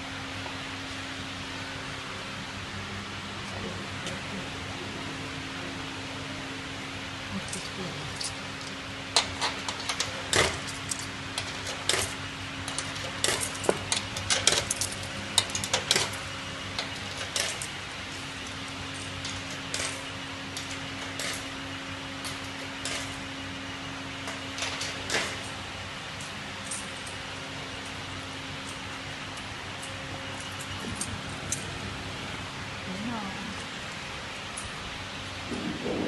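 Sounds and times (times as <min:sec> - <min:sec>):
low electrical hum: 0:00.0 - 0:36.0
metallic clicks and clinks: 0:07.4 - 0:16.2, 0:26.2 - 0:27.2.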